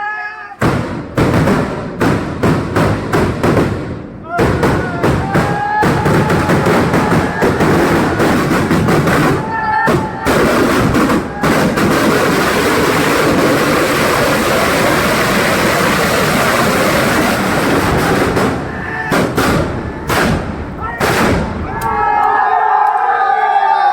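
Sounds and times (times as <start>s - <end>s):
firecrackers banging: 0.6s - 22.1s.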